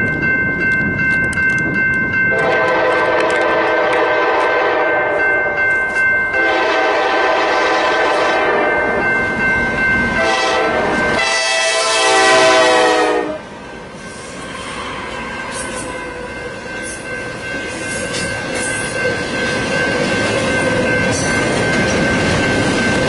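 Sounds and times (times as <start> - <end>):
passing train running noise: 0.0 - 23.0
locomotive air horn chord: 2.3 - 5.2, 6.4 - 8.8, 10.2 - 13.5.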